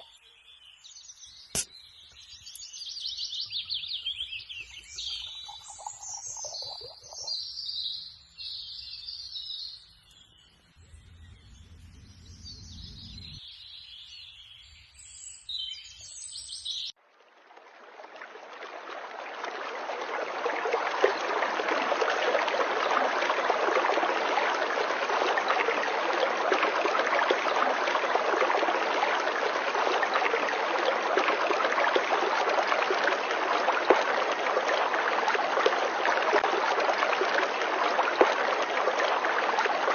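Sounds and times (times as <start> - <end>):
birds chirping and singing: 0.1 - 16.9
flowing water rushing: 4.8 - 7.4, 17.1 - 39.9.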